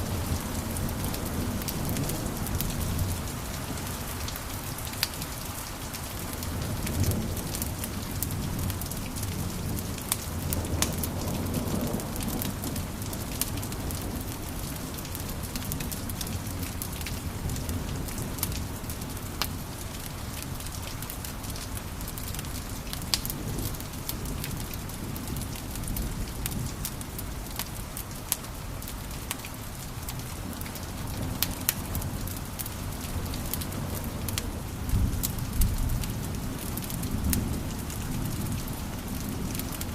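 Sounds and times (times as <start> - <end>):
wood fire crackling: 0.0 - 39.9
flames rumbling: 30.6 - 39.9.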